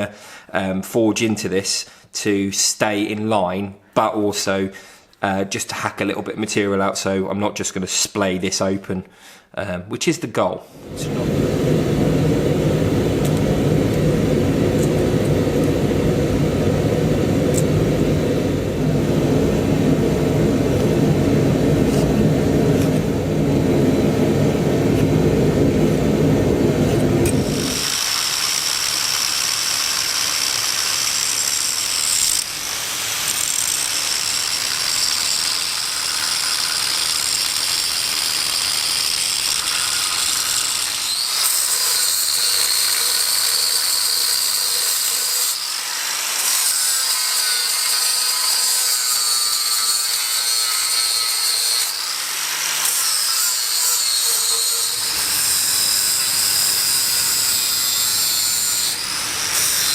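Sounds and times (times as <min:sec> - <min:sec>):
angle grinder cutting steel: 0:27.2 - 0:59.9.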